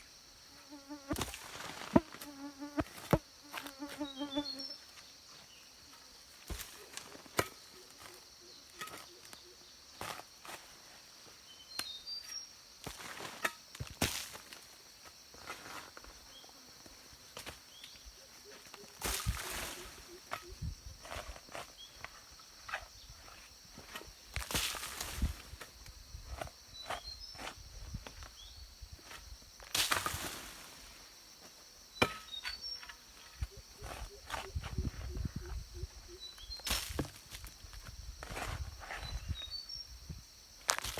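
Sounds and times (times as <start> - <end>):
high insect drone: 0.0 - 13.8, 14.5 - 40.9.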